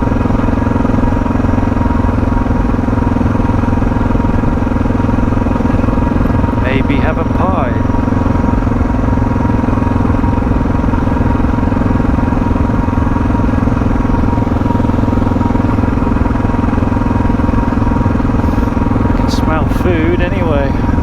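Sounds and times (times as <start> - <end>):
motorcycle engine droning: 0.0 - 21.0.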